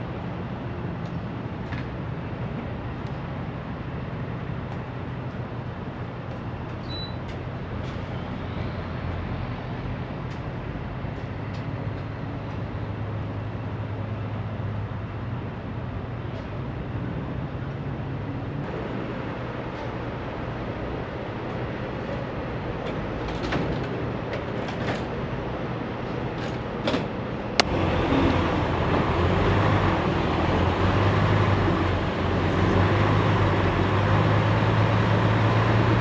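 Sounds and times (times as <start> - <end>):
road noise: 0.0 - 36.0
truck engine hum: 27.6 - 36.0.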